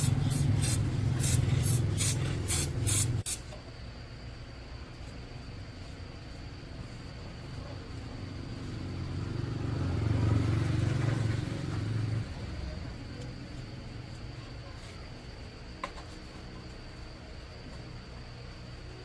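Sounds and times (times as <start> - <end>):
vehicle engine running: 0.0 - 3.2.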